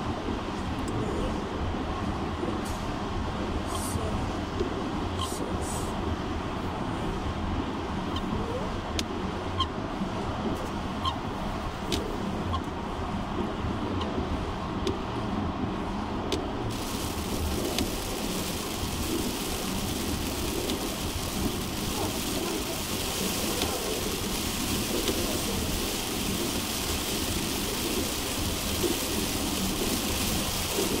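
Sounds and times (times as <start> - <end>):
heavy rain hissing: 16.7 - 31.0
low rumble: 16.7 - 31.0.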